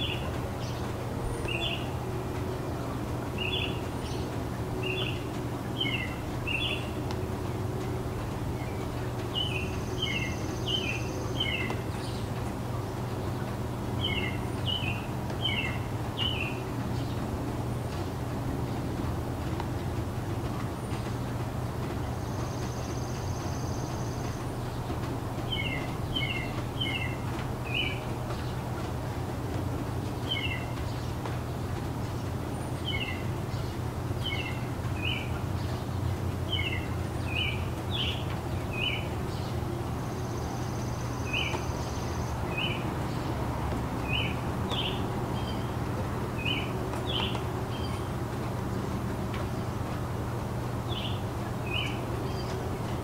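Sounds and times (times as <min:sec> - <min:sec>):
bird chirping: 0:00.0 - 0:07.2, 0:07.8 - 0:17.2, 0:22.1 - 0:28.7, 0:30.1 - 0:31.3, 0:32.0 - 0:43.4, 0:44.0 - 0:48.3, 0:50.8 - 0:53.0
low background hum: 0:00.0 - 0:53.0.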